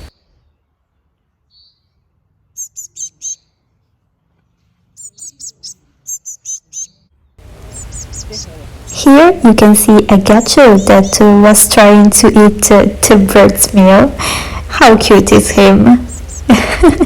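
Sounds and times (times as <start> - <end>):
finch chicks cheeping: 1.5 - 3.7, 4.9 - 9.0, 15.6 - 16.5.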